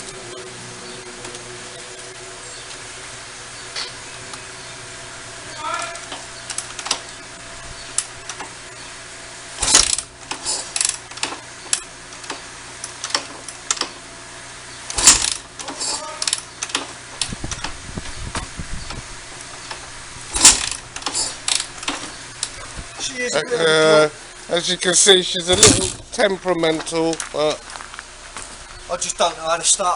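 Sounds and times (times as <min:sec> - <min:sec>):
motorcycle kick start clanking: 0:09.6 - 0:14.0, 0:14.8 - 0:19.0, 0:19.6 - 0:22.6, 0:25.4 - 0:26.1.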